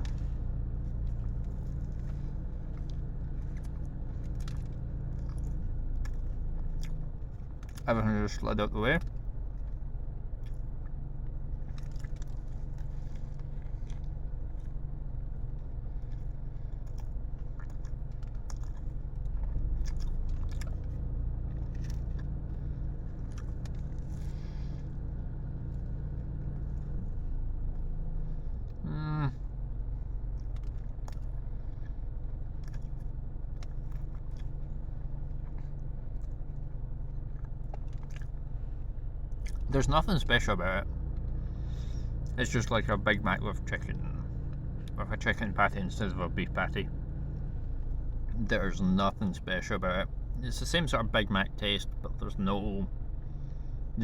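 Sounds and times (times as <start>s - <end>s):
steady low rumble: 0.0s - 54.0s
person chewing: 0.9s - 7.8s, 10.4s - 28.0s, 29.4s - 39.7s.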